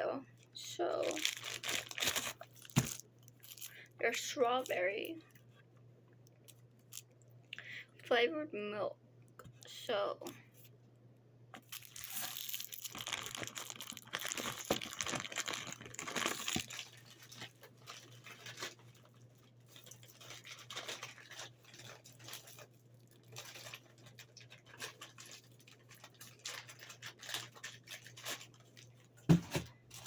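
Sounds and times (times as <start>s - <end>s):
snack packaging crinkling: 1.0s - 3.9s, 6.2s - 7.2s, 11.6s - 30.0s.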